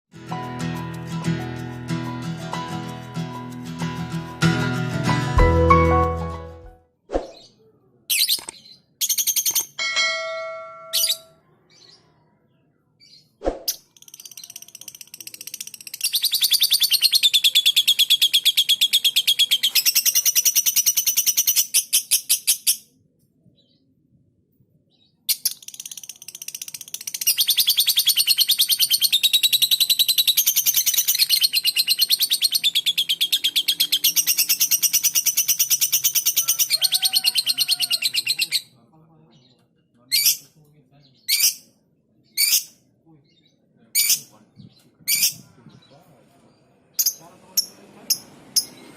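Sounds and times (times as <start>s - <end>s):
bird chattering: 13.8s - 22.6s, 25.3s - 38.8s.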